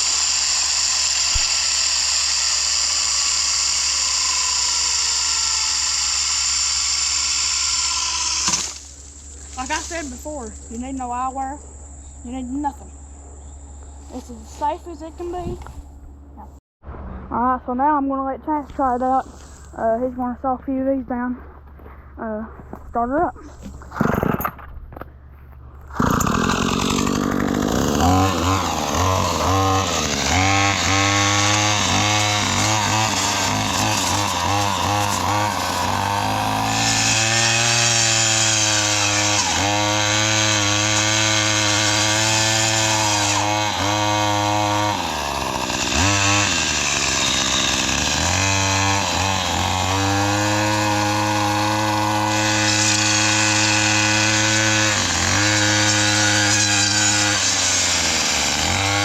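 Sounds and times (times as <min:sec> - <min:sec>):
string trimmer engine running hard: 0:25.9 - 0:59.0.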